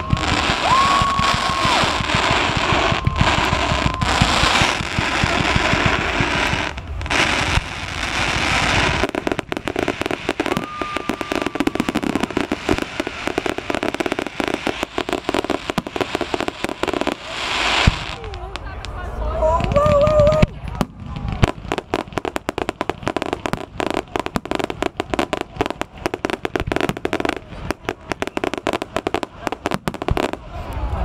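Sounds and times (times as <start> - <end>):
loud firework bang: 0.0 - 18.1
firework whistles: 0.0 - 18.3, 23.2 - 31.0
fireworks bursting: 0.0 - 31.0
fireworks crackling: 0.0 - 31.0.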